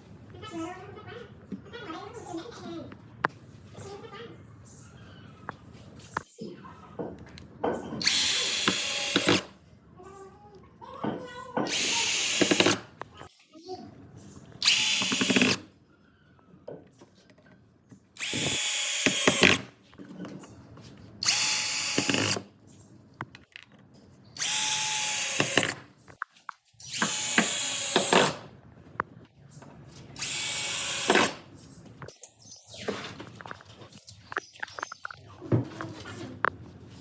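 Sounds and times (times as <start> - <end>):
electric drill bursts: 8.0 - 9.5, 11.7 - 12.9, 14.6 - 15.7, 18.2 - 19.7, 21.2 - 22.4, 24.4 - 25.8, 26.8 - 28.5, 30.2 - 31.5.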